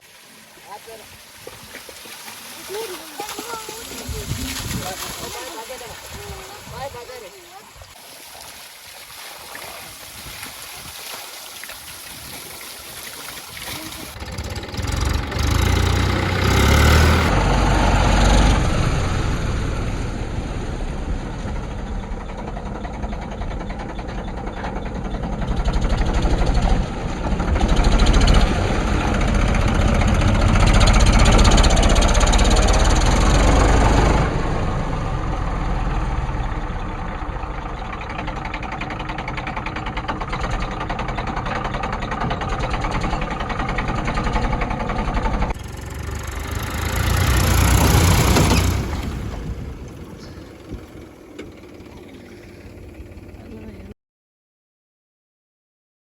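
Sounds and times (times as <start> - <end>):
mini tractor engine running: 12.5 - 53.9.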